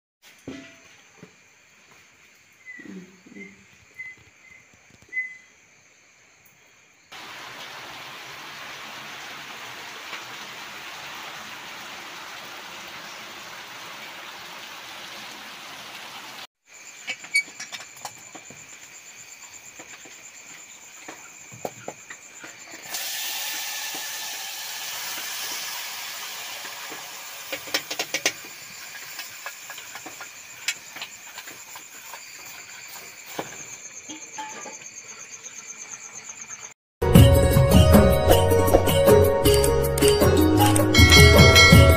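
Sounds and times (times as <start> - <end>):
insects chirring: 0.3 - 10.6, 16.6 - 36.8
fish sizzling in hot pan: 7.2 - 16.5, 22.8 - 33.4.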